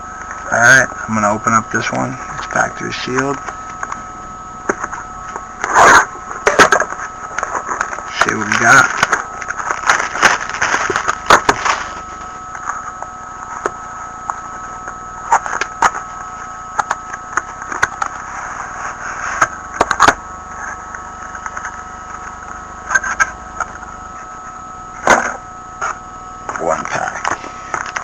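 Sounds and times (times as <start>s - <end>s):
faint steady high tone: 0.0s - 28.0s
cardboard being handled: 7.0s - 12.2s
plastic shrink-wrap crinkling: 8.4s - 12.1s.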